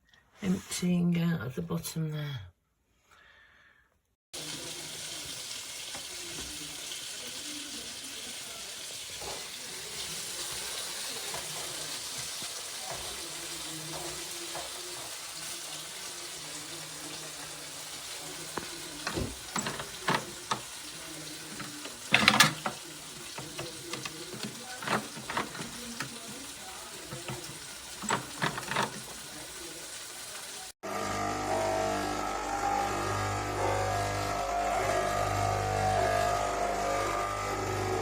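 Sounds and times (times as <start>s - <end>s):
clicks and knocks: 18.6s - 20.8s, 21.5s - 26.5s, 27.1s - 29.3s.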